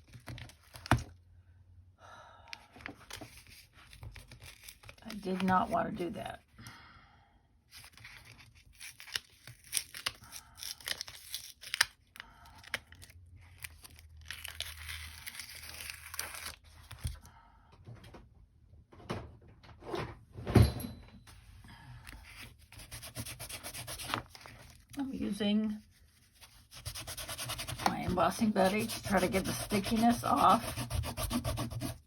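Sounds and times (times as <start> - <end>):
paper rustling and crinkling: 2.8 - 5.8, 7.7 - 10.2, 22.1 - 32.0
paper peeling from adhesive: 22.2 - 25.0.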